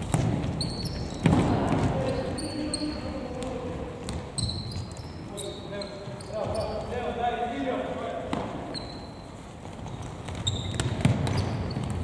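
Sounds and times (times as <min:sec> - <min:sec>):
shoes squeaking on floor: 0:00.0 - 0:07.2, 0:08.2 - 0:12.0
football kick thuds with echo: 0:10.0 - 0:12.0.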